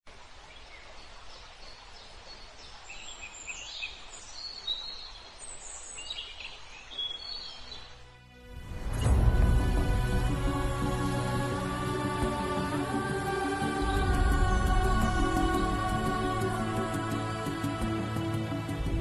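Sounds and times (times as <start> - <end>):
outdoor background hiss: 0.1 - 19.0
small birds chirping: 0.4 - 8.0.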